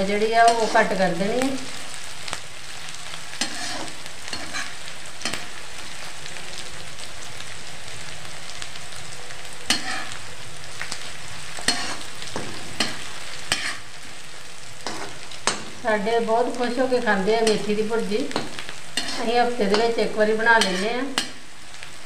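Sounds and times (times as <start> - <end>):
vegetables sizzling in hot oil: 0.0 - 22.0
metal spatula scraping pan: 0.4 - 1.0, 3.4 - 5.5, 9.7 - 10.2, 11.6 - 13.9, 14.8 - 15.8, 17.4 - 20.0, 20.6 - 21.4.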